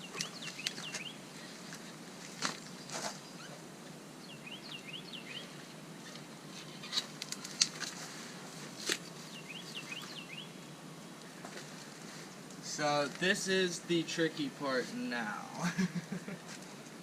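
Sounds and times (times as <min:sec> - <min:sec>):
songbird chirping: 0:00.0 - 0:07.7, 0:09.0 - 0:11.6
steady hiss: 0:00.0 - 0:17.0.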